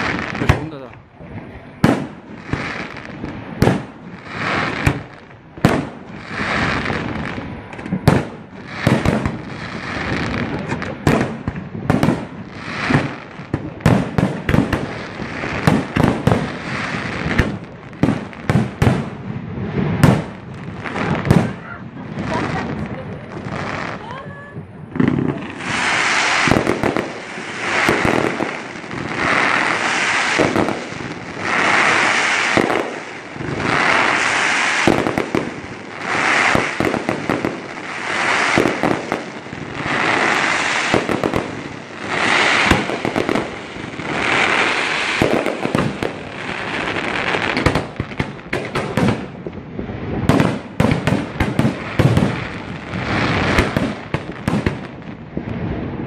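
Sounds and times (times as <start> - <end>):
sharp firework cracks: 0.0 - 1.0, 1.8 - 24.1, 24.8 - 56.0
fireworks shots bursting: 0.0 - 56.0.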